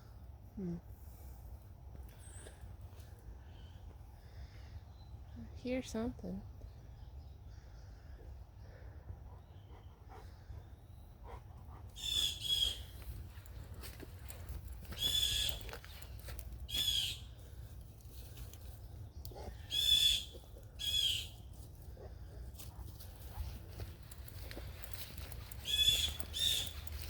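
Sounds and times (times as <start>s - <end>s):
bird calling loudly: 12.0s - 13.0s, 14.9s - 15.8s, 16.7s - 17.3s, 19.6s - 21.4s, 25.5s - 27.0s.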